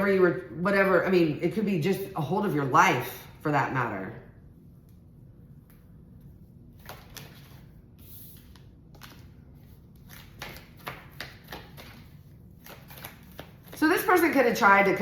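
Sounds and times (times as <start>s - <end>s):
cards flicking and tapping: 10.0s - 13.8s.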